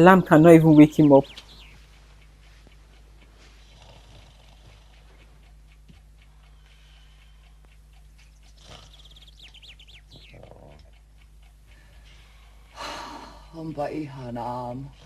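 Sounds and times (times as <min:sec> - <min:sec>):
faint songbird chirps: 0:00.0 - 0:03.8, 0:06.3 - 0:15.0
faint even ticking: 0:00.0 - 0:15.0.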